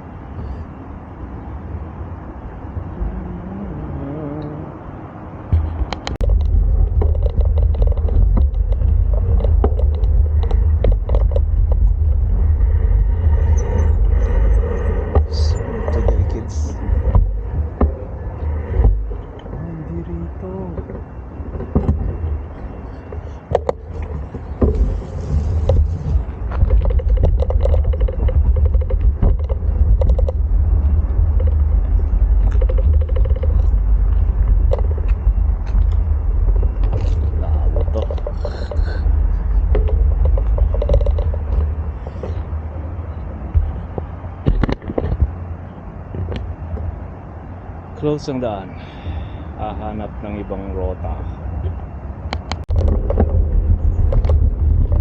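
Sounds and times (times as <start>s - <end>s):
wind rumble on microphone: 0.0s - 55.0s
bicycle clicks and rattles: 5.8s - 12.3s.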